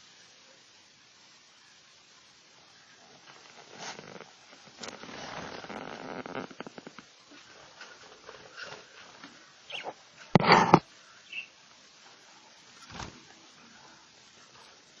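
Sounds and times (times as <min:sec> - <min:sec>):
rustling: 0:03.0 - 0:10.9
budgerigars chirping and chattering: 0:09.6 - 0:10.0, 0:11.2 - 0:11.6.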